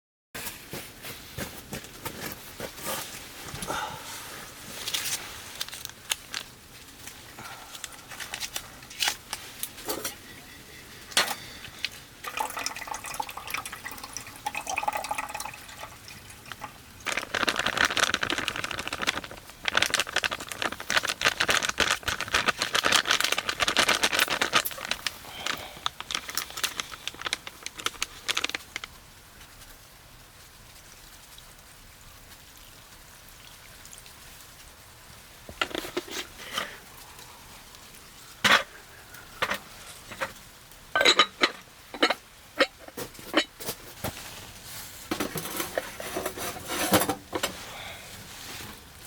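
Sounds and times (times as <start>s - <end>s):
water pouring: 4.7s - 29.0s
cookware clinking and knocking: 41.0s - 42.8s.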